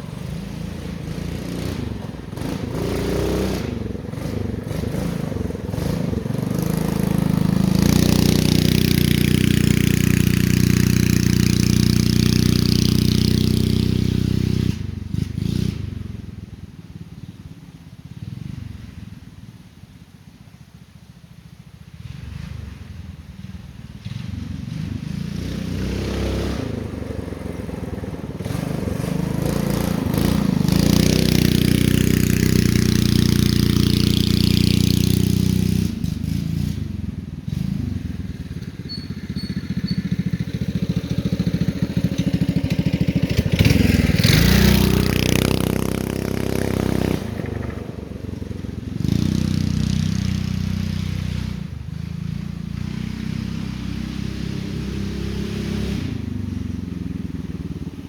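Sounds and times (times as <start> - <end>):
mini bike engine revving: 0.0 - 16.6, 21.9 - 58.0.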